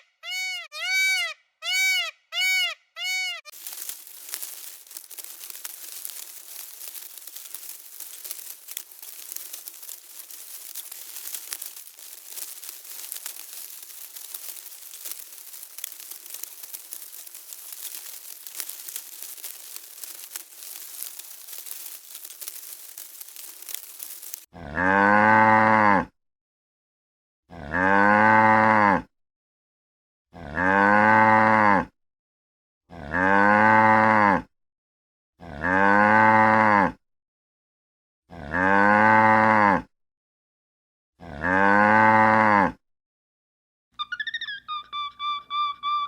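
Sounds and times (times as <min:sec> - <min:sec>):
crackling crinkling noise: 0:03.5 - 0:24.5
cow mooing: 0:24.6 - 0:26.1, 0:27.6 - 0:29.0, 0:41.3 - 0:42.8.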